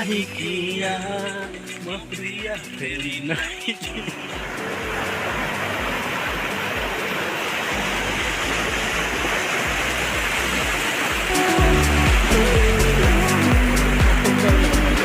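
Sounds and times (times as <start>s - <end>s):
low background music: 0.0s - 15.0s
floodwater rushing in river: 3.9s - 15.0s.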